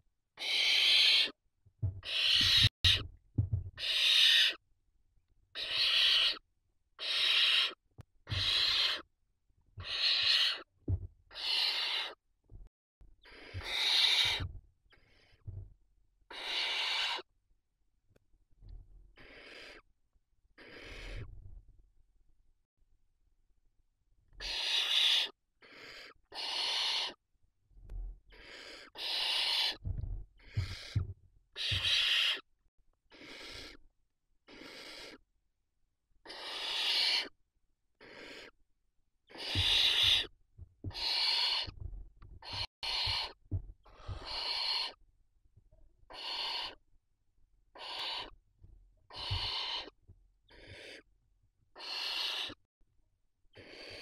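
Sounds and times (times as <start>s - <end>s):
owl chicks hissing: 0.4s - 1.4s, 2.0s - 3.0s, 3.8s - 4.6s, 5.5s - 6.4s, 7.0s - 9.1s, 9.8s - 10.7s, 11.3s - 12.2s, 13.2s - 15.4s, 16.3s - 17.3s, 19.1s - 19.9s, 20.6s - 21.3s, 24.4s - 27.2s, 28.3s - 29.8s, 30.4s - 32.4s, 33.1s - 33.8s, 34.4s - 35.2s, 36.2s - 37.4s, 38.0s - 38.6s, 39.2s - 40.3s, 40.9s - 41.8s, 42.4s - 45.0s, 46.1s - 46.8s, 47.7s - 48.4s, 49.1s - 51.1s, 51.7s - 52.6s, 53.5s - 54.0s
low thumps: 1.8s - 3.8s, 10.8s - 11.2s.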